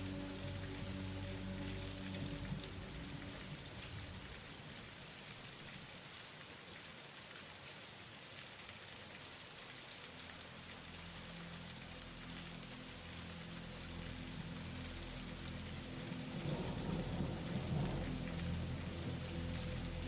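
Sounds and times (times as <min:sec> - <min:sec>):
soft background music: 0:00.0 - 0:04.9, 0:10.2 - 0:20.0
steady rain: 0:00.0 - 0:20.0.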